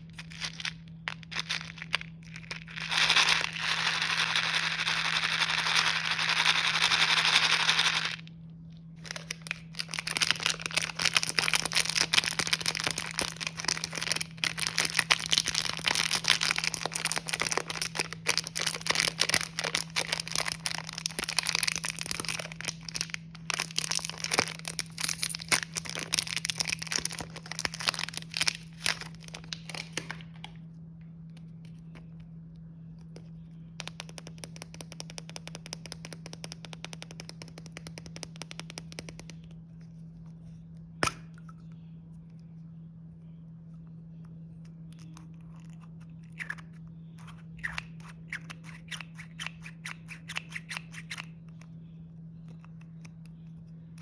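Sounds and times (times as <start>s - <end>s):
plastic packaging crinkling: 0.0s - 8.2s, 9.0s - 30.5s.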